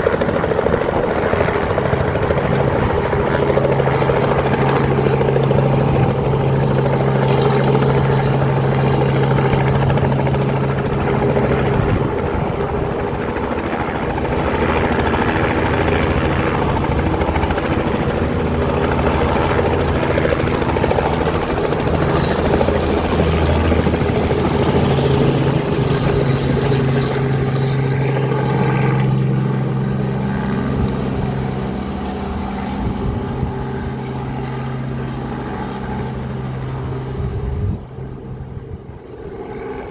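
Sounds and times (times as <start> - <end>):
helicopter engine and rotor: 0.0 - 39.9
low hum: 1.4 - 12.6.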